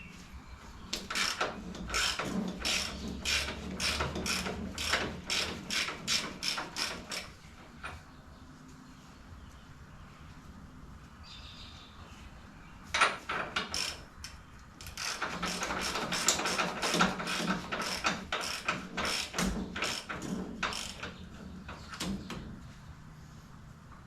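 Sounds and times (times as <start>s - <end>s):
hand tools clicking on metal: 0.9s - 7.3s, 13.0s - 21.2s.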